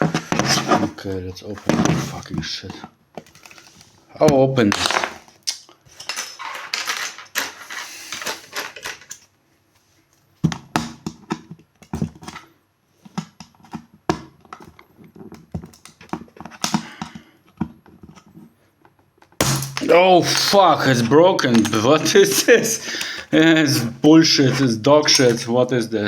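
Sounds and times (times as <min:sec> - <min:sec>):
plastic scraping: 0:00.0 - 0:05.4, 0:19.8 - 0:25.6.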